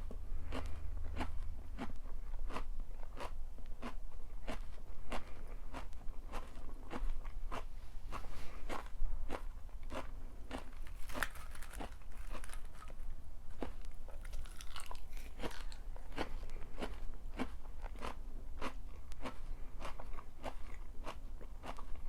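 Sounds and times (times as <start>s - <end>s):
person chewing crunchy food: 0.0s - 22.0s.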